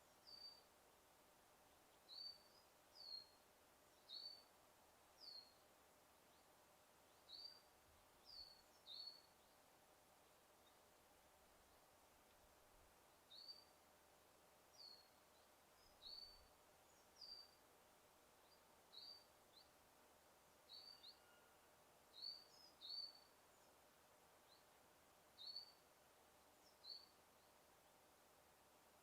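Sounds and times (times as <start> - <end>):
faint bird chirps: 0.0 - 0.7, 1.9 - 4.5, 5.2 - 5.6, 7.1 - 10.9, 13.3 - 13.8, 14.7 - 17.6, 18.4 - 19.8, 20.6 - 23.8, 25.4 - 28.0
steady background hiss: 0.0 - 29.0.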